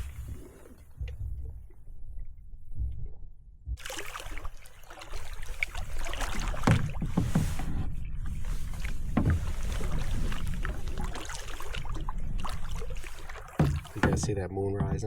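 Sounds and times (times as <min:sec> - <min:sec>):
paddle strokes in water: 0:00.0 - 0:01.8, 0:03.8 - 0:15.0
low rumble: 0:00.0 - 0:03.9
water splashing against hull: 0:00.0 - 0:15.0.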